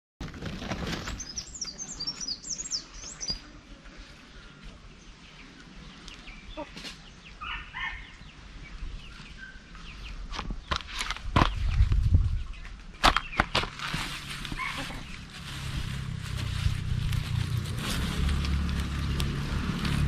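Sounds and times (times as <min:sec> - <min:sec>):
lower bird calls: 0:00.9 - 0:03.6, 0:04.2 - 0:10.3
small birds chirping: 0:00.9 - 0:13.5.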